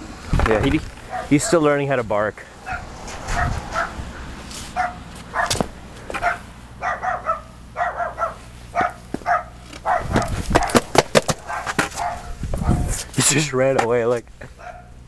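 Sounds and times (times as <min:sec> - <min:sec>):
young dog barking: 0:01.0 - 0:01.8, 0:02.6 - 0:13.0, 0:14.5 - 0:15.0.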